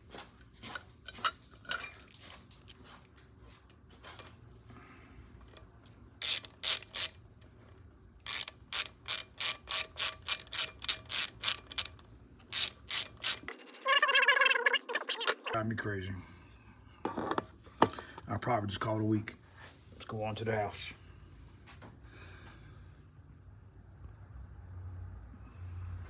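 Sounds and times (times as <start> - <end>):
socket ratchet clicking: 6.2 - 7.2, 8.3 - 15.6.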